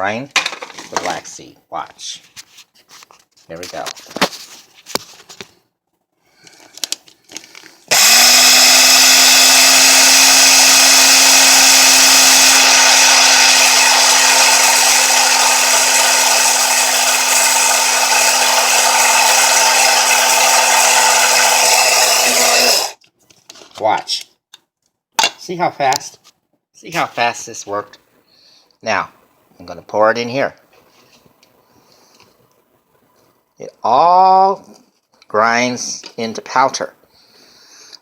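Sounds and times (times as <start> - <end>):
electric coffee grinder grinding: 7.9 - 23.0.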